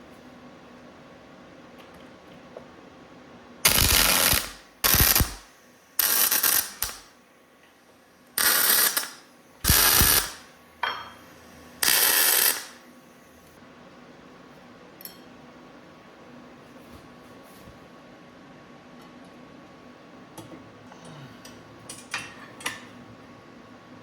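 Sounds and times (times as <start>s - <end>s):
metal fabrication tool bursts: 3.6s - 7.2s, 8.4s - 10.5s, 11.3s - 12.9s.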